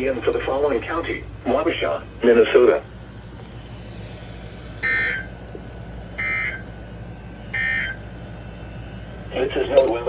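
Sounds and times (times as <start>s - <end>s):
short buzzing data bursts: 3.0s - 5.3s.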